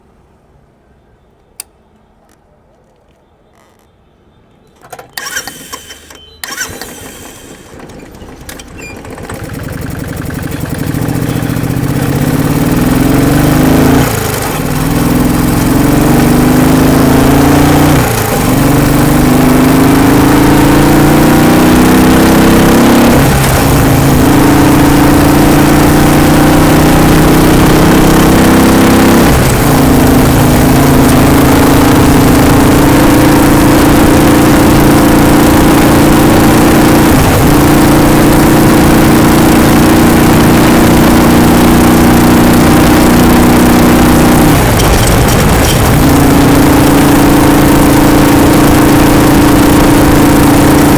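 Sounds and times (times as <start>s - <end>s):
clicks: 1.4s - 4.0s
motorcycle engine accelerating: 5.2s - 50.9s.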